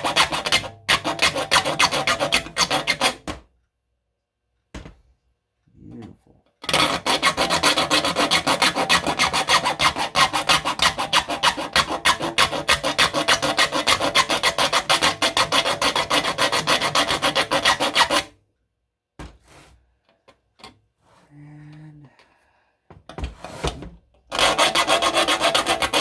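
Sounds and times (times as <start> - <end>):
file rasping on saw teeth: 0.0 - 3.2, 6.6 - 18.4, 24.3 - 26.0.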